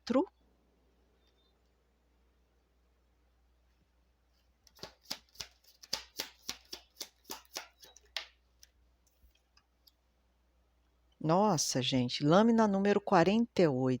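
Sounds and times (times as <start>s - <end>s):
cards being shuffled: 4.6s - 9.5s.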